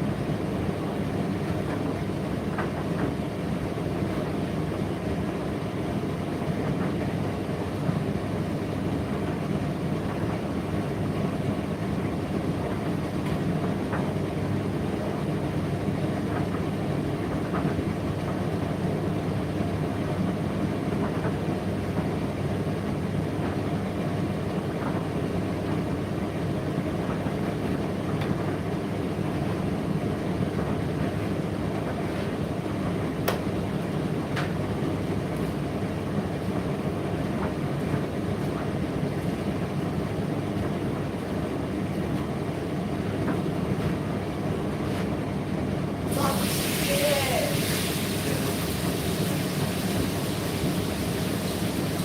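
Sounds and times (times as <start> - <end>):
tumble dryer running: 45.6 - 52.0.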